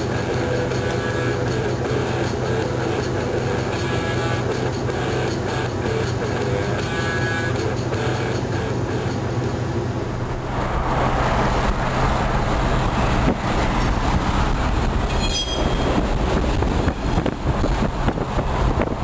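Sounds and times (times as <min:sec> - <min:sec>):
locomotive engine rumble: 0:00.0 - 0:19.0
train rolling past: 0:08.8 - 0:19.0.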